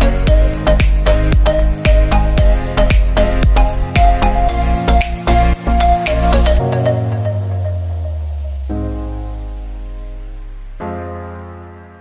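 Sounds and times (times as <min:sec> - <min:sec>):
electronic beat: 0:00.0 - 0:08.8
held low chord: 0:00.0 - 0:11.5.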